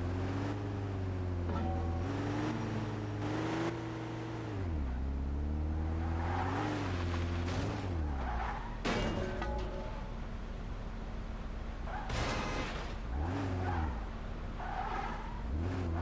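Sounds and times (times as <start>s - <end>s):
car engine revving: 2.0s - 7.9s.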